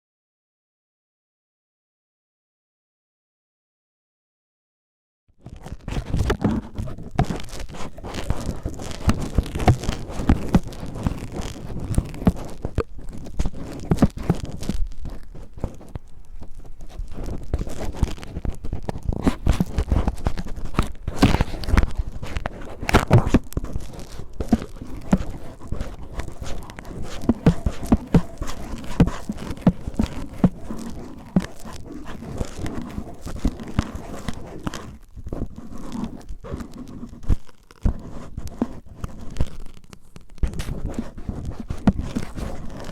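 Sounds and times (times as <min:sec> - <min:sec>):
cellophane crinkling: 0:05.4 - 0:42.9.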